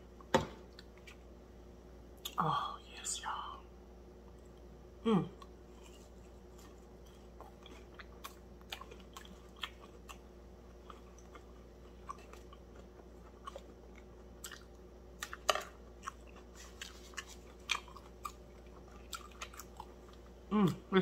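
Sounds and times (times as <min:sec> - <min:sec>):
faint steady hum: 0:00.0 - 0:21.0
crunchy chewing: 0:05.3 - 0:20.9.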